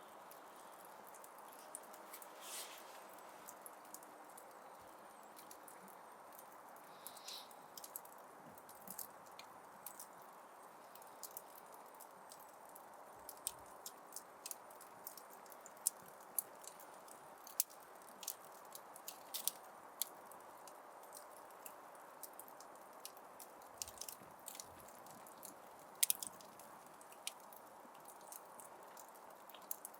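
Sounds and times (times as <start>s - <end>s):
wood fire crackling: 0.0s - 29.9s
fire hiss: 2.1s - 3.5s, 6.9s - 7.9s.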